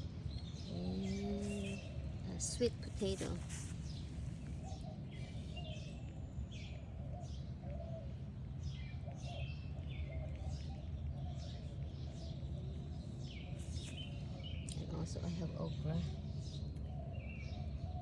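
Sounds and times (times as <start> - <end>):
birds chirping: 0.2 - 18.0.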